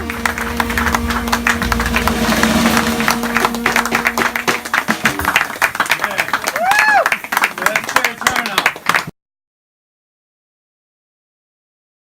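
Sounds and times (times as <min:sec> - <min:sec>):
jazz band holding note: 0:00.0 - 0:07.2
audience applause and cheering: 0:00.0 - 0:09.1.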